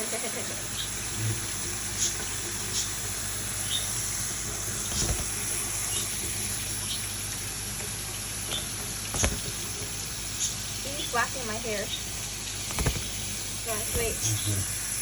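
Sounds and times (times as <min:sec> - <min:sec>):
tap water running: 0:00.0 - 0:15.0.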